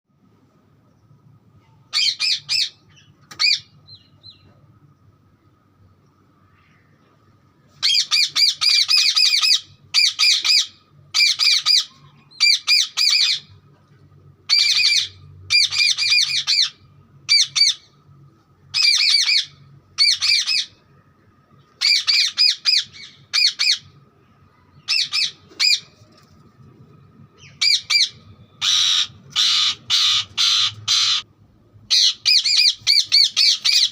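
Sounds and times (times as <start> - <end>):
parrot squawking: 1.9 - 3.7, 7.8 - 13.5, 14.5 - 17.9, 18.7 - 20.8, 21.8 - 23.9, 24.9 - 25.9, 27.4 - 31.3, 31.9 - 33.9.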